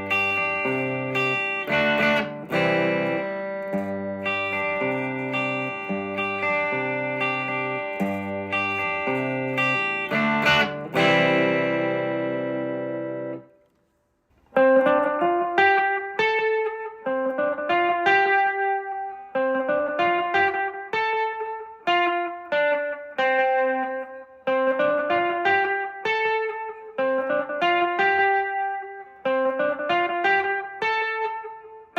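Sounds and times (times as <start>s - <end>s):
electric guitar chord riff: 0.0s - 13.6s, 14.5s - 31.9s
picked electric guitar line: 0.0s - 13.8s, 14.4s - 31.9s.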